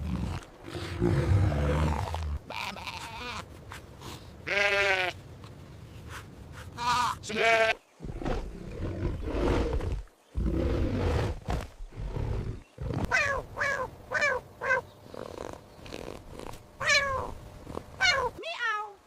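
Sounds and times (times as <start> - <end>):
big cat roaring and growling: 0.0 - 2.4, 8.0 - 13.2.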